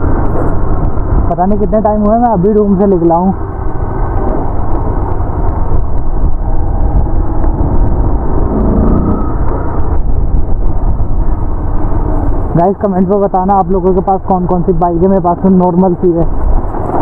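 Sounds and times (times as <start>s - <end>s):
motorcycle engine running: 0.0s - 15.5s
wind rumble: 0.0s - 17.0s.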